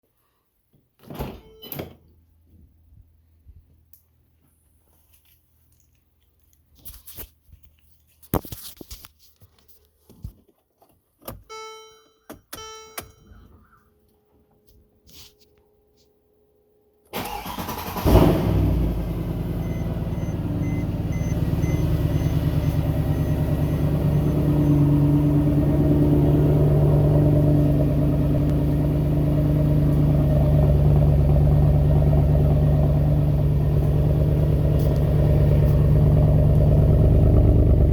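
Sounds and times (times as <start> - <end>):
short electronic chimes: 11.5 - 13.5
car engine starting and idling: 17.1 - 37.9.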